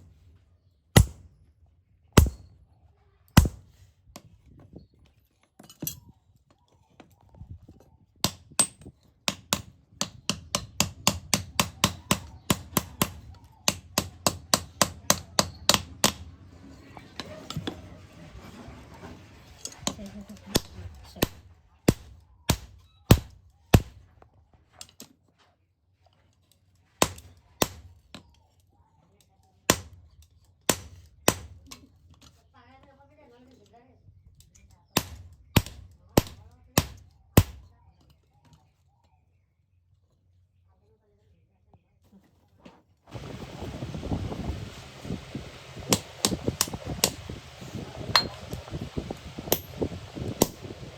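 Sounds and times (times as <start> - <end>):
hammer striking iron: 1.0 - 1.2, 2.2 - 2.5, 8.6 - 16.2, 45.8 - 48.8, 49.4 - 50.7.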